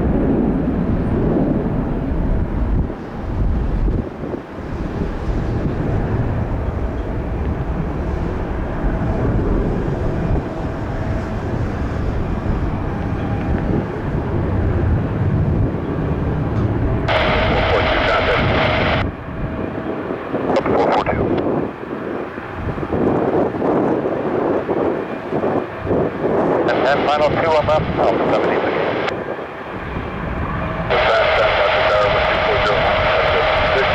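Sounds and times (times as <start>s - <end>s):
jet engines rumbling: 0.0s - 33.9s
wind buffeting microphone: 0.0s - 33.9s
radio static: 17.1s - 19.1s, 20.5s - 21.4s, 26.6s - 29.2s, 30.9s - 33.9s.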